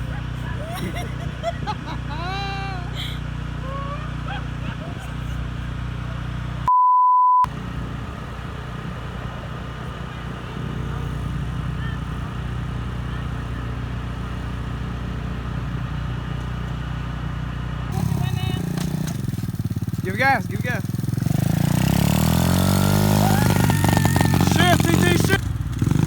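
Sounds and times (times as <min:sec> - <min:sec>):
dirt bike engine running: 0:00.0 - 0:06.7, 0:07.5 - 0:26.0
censor bleep: 0:06.7 - 0:07.5.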